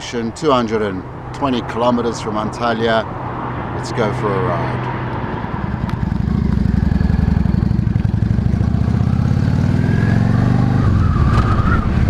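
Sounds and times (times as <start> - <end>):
motorcycle engine pulling away: 5.6 - 12.0.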